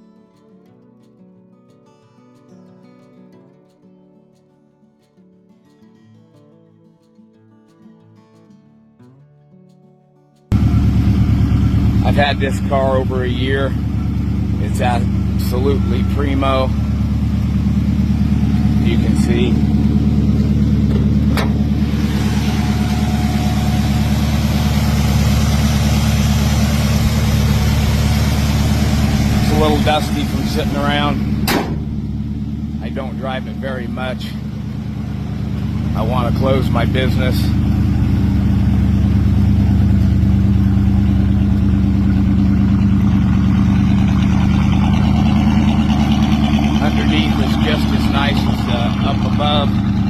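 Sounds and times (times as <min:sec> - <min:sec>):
car engine idling: 0:10.5 - 0:50.0.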